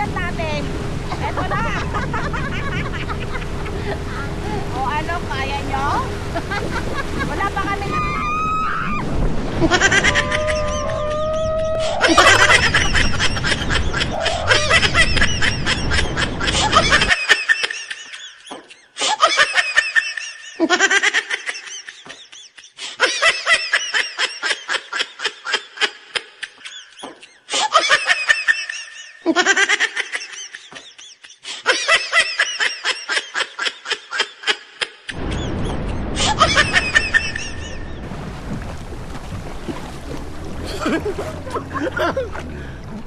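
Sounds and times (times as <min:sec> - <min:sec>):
outdoor rumble: 0:00.0 - 0:17.1, 0:35.2 - 0:43.0
people laughing: 0:01.0 - 0:08.4, 0:09.6 - 0:37.8, 0:40.4 - 0:43.0.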